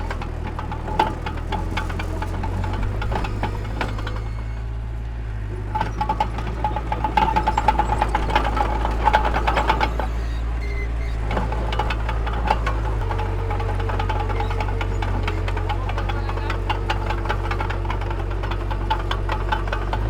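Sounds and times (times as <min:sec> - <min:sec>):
metallic clanking and rattling: 0:00.0 - 0:04.7, 0:05.6 - 0:20.0
diesel machinery rumbling: 0:00.0 - 0:20.0.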